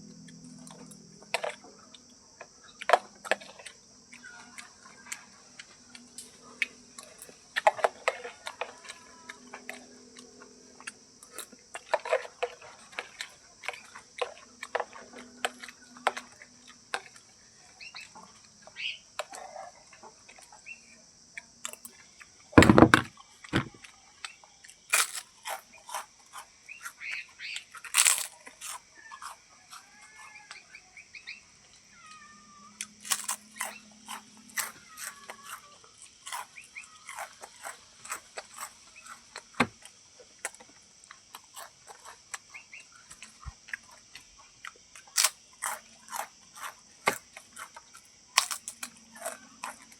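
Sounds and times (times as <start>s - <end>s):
loud knock: 22.6s - 23.8s.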